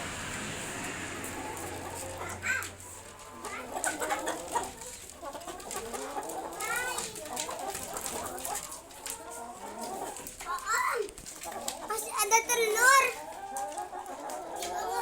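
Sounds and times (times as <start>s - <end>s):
high rising peeps: 0.0s - 3.0s
chickens clucking: 0.0s - 15.0s.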